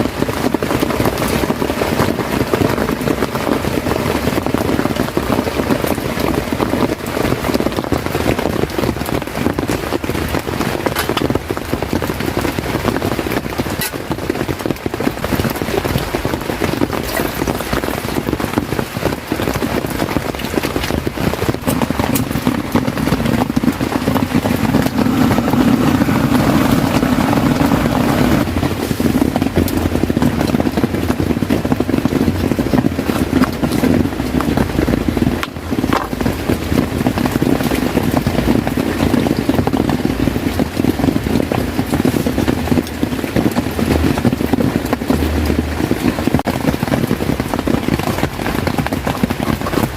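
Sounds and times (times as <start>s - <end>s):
heavy rain on a tent: 0.0s - 49.9s.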